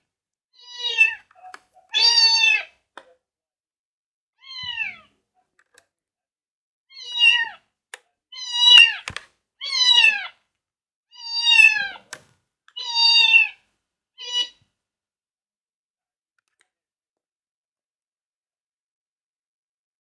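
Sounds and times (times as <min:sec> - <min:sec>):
cat meowing: 0:00.6 - 0:02.7, 0:04.4 - 0:05.1, 0:06.9 - 0:07.6, 0:09.6 - 0:10.3, 0:11.1 - 0:12.1, 0:12.8 - 0:13.6, 0:14.2 - 0:14.6.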